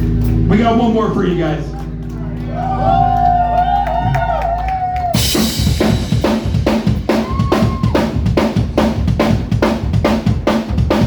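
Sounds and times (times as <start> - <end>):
drum kit playing a beat: 0.0 - 11.0.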